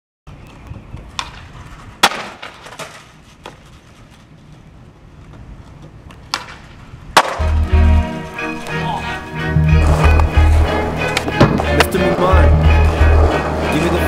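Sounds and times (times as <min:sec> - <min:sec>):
skateboard wheels rolling on concrete: 0:00.3 - 0:14.0
skateboard clacks: 0:00.6 - 0:03.8, 0:05.2 - 0:07.6, 0:09.8 - 0:14.0.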